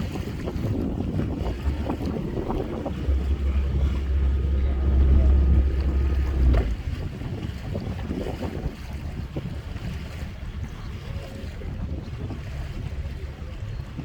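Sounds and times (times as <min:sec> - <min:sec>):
water rushing: 0:00.0 - 0:08.4
wind buffeting microphone: 0:00.0 - 0:14.0.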